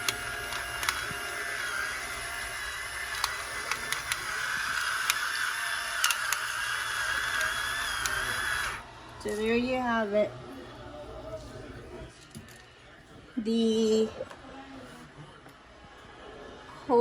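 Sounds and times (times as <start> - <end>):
sharp clicks: 0.0 - 8.8
electric pepper mill whirring: 0.0 - 9.7.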